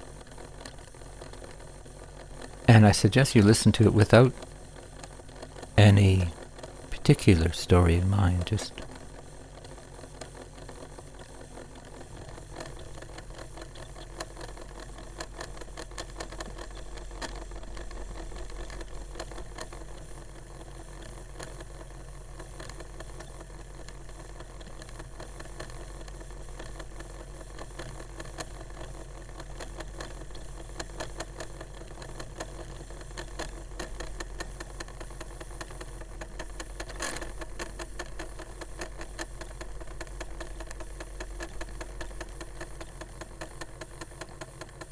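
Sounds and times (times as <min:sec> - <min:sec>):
cd player motor whirring and ticking: 0:09.2 - 0:44.9.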